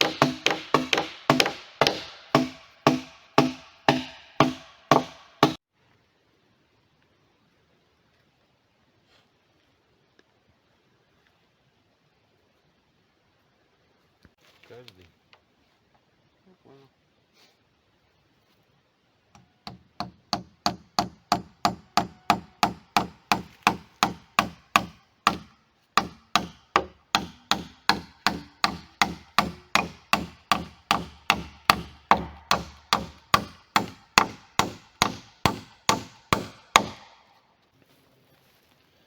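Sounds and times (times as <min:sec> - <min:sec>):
hammer striking nail: 0:00.0 - 0:05.6, 0:19.4 - 0:37.2.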